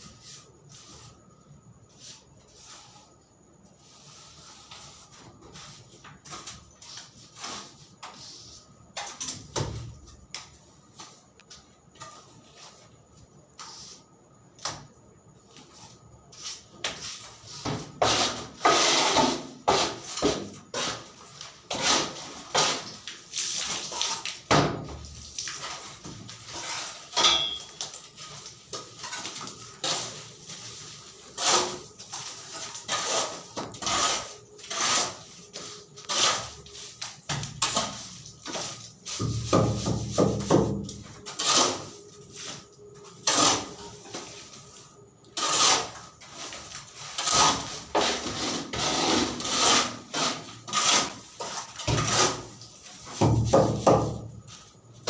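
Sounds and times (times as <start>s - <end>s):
hand tools knocking and scraping: 25.6s - 41.9s, 45.4s - 54.2s.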